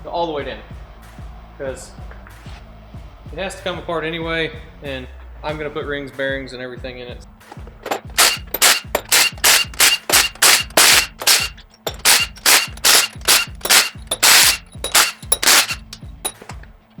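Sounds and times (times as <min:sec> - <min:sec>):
impact wrench bursts: 0:07.9 - 0:16.6.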